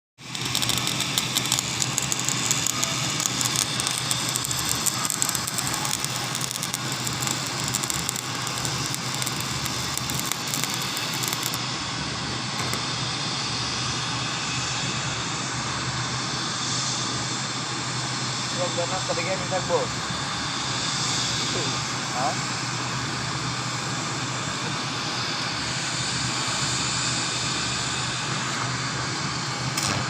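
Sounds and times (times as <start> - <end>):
welding arc crackling: 0.2 - 11.6, 12.4 - 13.0, 29.7 - 30.0.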